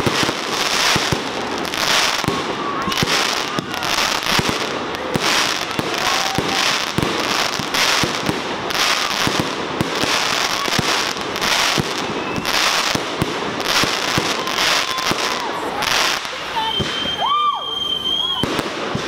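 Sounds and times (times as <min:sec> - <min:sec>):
firework crackling: 0:00.0 - 0:19.0
firework whistles: 0:00.0 - 0:19.0.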